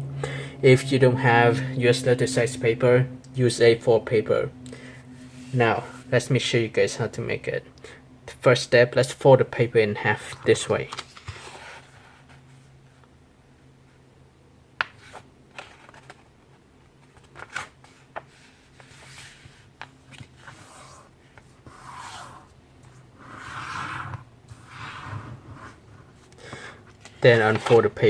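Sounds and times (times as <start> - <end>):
paper rubbing: 17.8 - 26.3.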